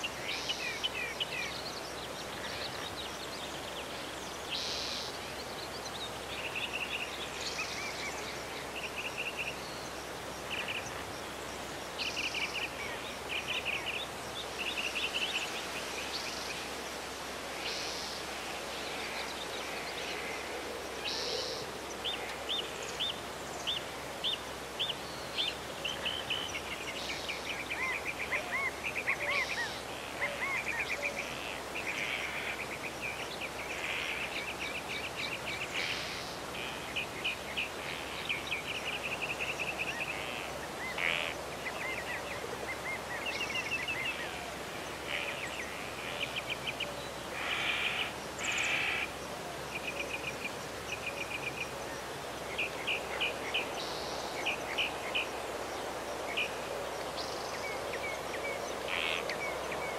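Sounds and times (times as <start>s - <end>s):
songbirds chirping and trilling: 0.0s - 59.9s
steady background hiss: 0.0s - 59.9s.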